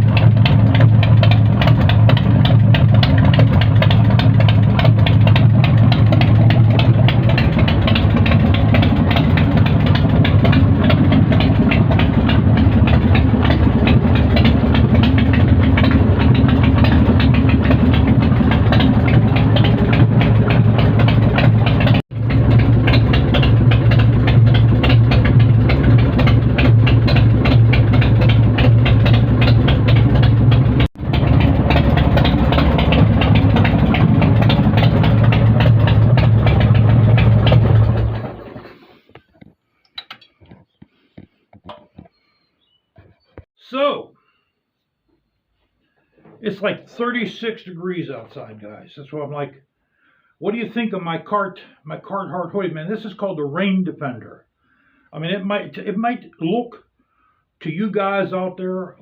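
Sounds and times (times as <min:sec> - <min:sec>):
motorcycle engine idling: 0:00.0 - 0:39.5.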